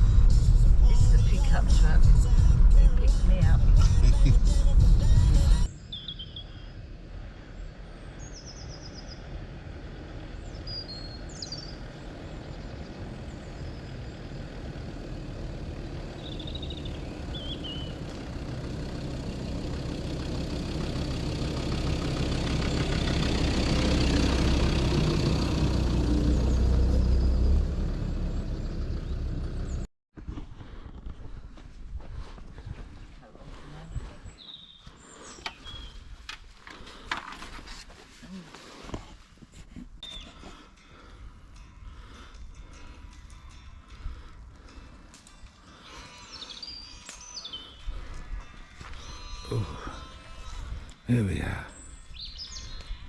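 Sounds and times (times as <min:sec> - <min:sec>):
vehicle engine approaching: 0:00.0 - 0:05.8, 0:06.7 - 0:29.9
birds chirping: 0:05.6 - 0:24.6, 0:28.2 - 0:29.9, 0:32.6 - 0:37.1, 0:40.0 - 0:53.0.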